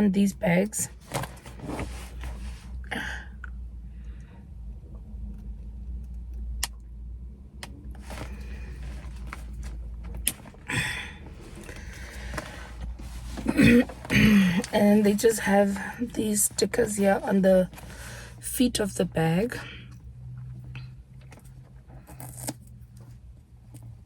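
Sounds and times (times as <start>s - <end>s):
low steady hum: 0.0s - 24.0s
handbag and packaging rustling: 0.9s - 2.8s, 8.0s - 18.4s.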